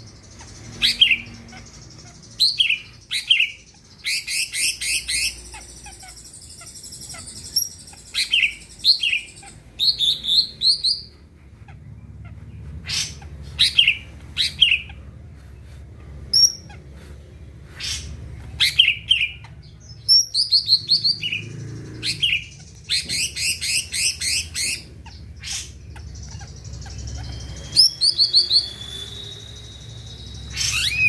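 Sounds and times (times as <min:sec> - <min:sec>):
bird singing sweeping whistles: 0:27.0 - 0:31.0.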